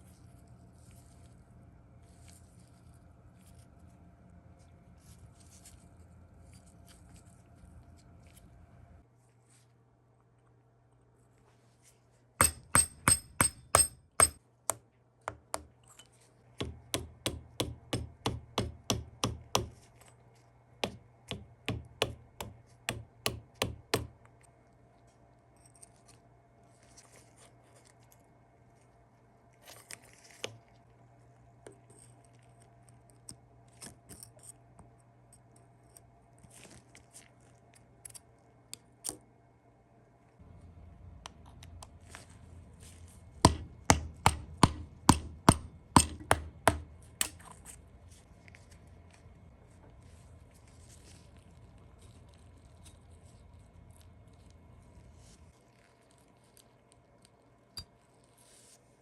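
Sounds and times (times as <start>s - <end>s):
hammer tapping metal: 12.4s - 15.8s, 16.6s - 19.8s, 20.8s - 24.1s, 43.5s - 47.4s.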